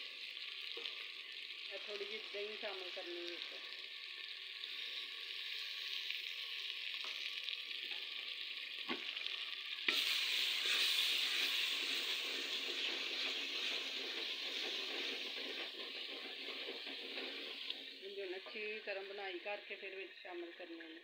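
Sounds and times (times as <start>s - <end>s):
food sizzling in hot oil: 0.0s - 21.0s
wooden spoon stirring in pot: 10.6s - 18.9s.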